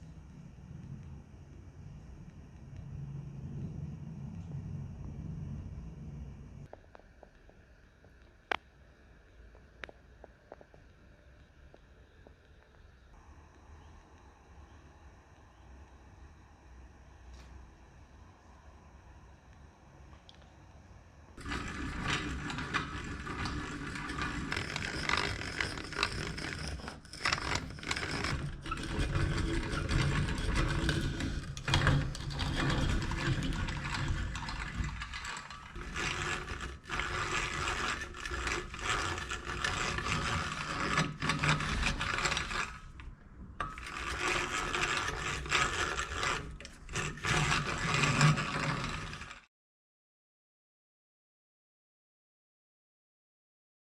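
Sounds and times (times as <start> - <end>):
hand drill gears whirring: 21.4 - 49.4.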